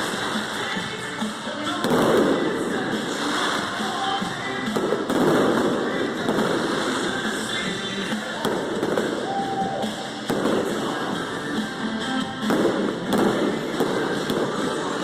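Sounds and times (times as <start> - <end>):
fireworks bursting and crackling: 0.0 - 15.0
music from loudspeakers: 0.0 - 15.0
sharp bangs: 4.6 - 11.2, 12.2 - 14.8.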